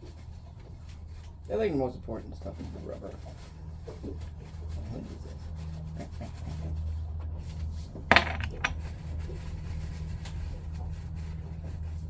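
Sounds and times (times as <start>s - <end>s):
metal part clinking on hard surface: 8.1s - 8.8s.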